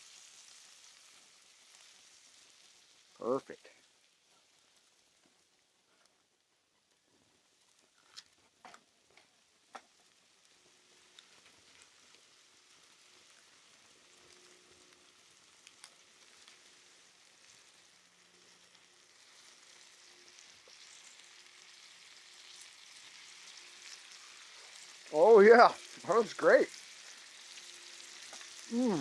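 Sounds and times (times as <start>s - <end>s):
faint fire sizzling: 0.0s - 29.0s
sharp fire crackles: 28.2s - 29.0s.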